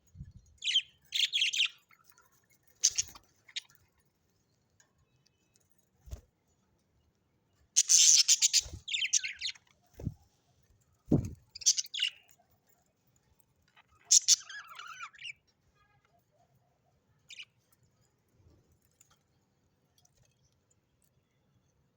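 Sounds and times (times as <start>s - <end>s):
parrots chattering calls: 7.8s - 9.4s, 13.9s - 15.3s
soft low thuds: 11.1s - 11.4s.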